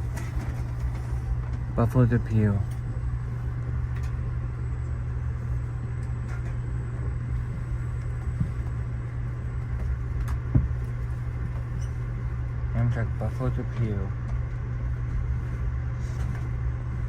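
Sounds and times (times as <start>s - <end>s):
train rumbling inside carriage: 0.0s - 17.0s.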